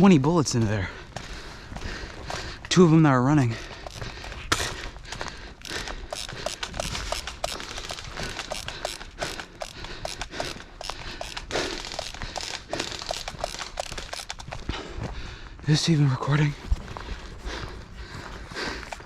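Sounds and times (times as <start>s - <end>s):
low rumble: 16.4s - 19.0s.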